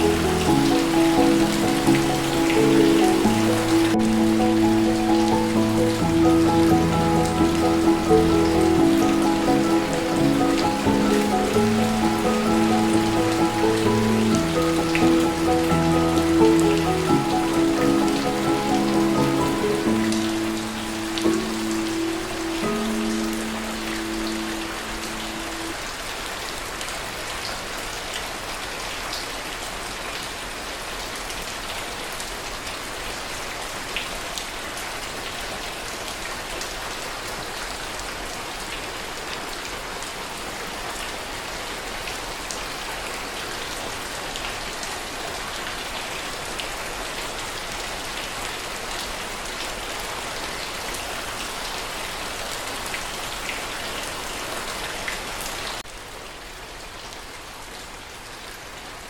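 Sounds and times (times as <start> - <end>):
heavy rain hissing: 0.0 - 27.4.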